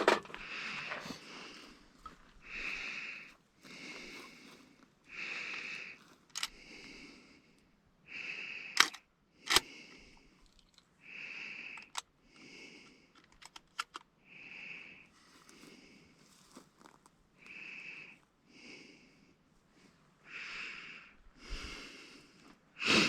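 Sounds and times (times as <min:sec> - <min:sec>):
breathing close to microphone: 0:00.3 - 0:08.9, 0:17.4 - 0:23.0
shotgun being loaded: 0:06.3 - 0:06.6, 0:08.8 - 0:09.7.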